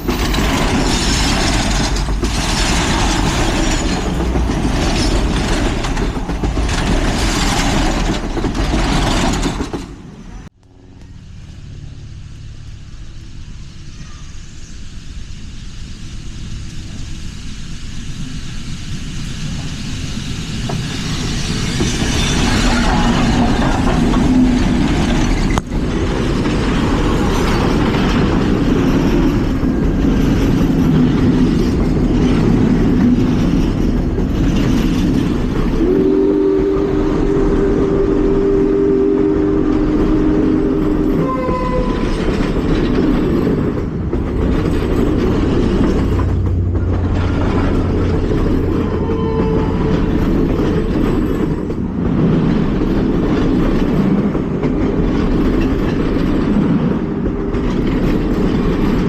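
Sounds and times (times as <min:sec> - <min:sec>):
steam locomotive passing: 0:00.0 - 0:59.0
train chime whistle: 0:35.8 - 0:42.4, 0:48.7 - 0:50.2.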